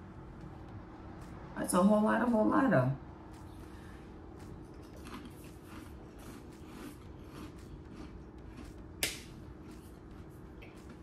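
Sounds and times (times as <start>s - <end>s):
person chewing crunchy snack: 4.3s - 11.0s.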